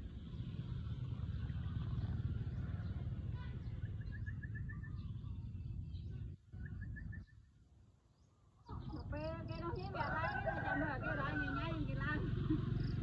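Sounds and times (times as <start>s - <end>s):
steady low rumble: 0.0s - 7.4s
small bird chirping: 1.4s - 10.0s.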